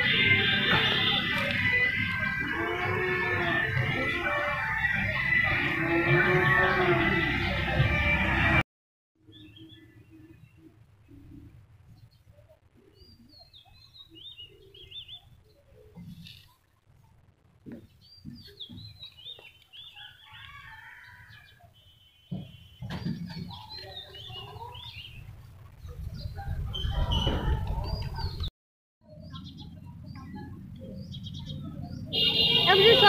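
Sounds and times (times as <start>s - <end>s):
small birds chirping: 9.2s - 28.5s, 29.1s - 32.6s.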